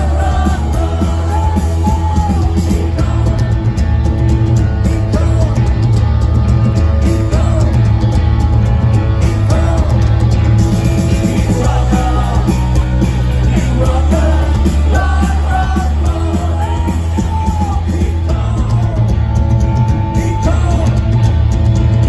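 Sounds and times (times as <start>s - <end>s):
person singing: 0.0s - 3.8s, 11.1s - 19.2s
punk rock band playing: 0.0s - 22.0s.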